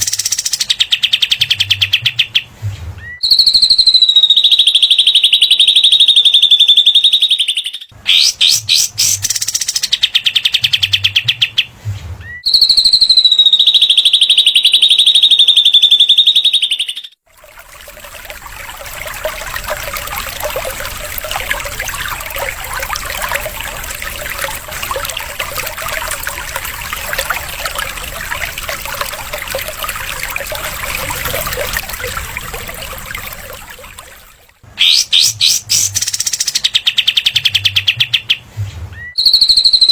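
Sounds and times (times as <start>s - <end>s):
dense bird chattering: 8.0s - 11.7s, 34.8s - 38.4s
songbird buzzy trill: 8.1s - 11.4s, 27.4s - 38.3s
fast rattling bird notes: 20.8s - 37.2s.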